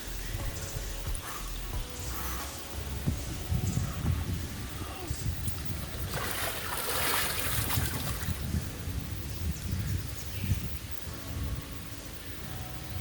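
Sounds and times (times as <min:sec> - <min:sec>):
low buffeting rumble: 0:00.0 - 0:13.0
water splashing and sloshing: 0:04.2 - 0:08.8.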